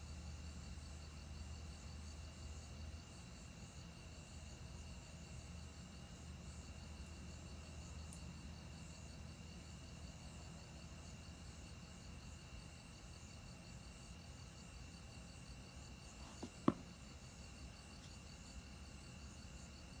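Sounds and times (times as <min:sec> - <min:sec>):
sharp knocks: 0:16.2 - 0:16.9.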